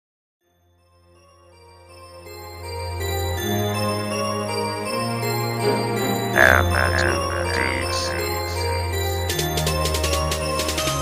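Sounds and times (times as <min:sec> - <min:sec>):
sustained keyboard chords: 0:05.2 - 0:10.1.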